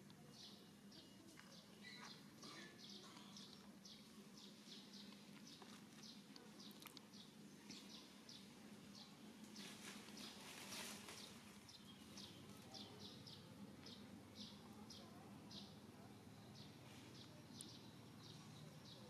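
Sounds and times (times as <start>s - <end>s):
faint steady low hum: 0.0s - 19.0s
small bird chirping: 0.3s - 10.4s.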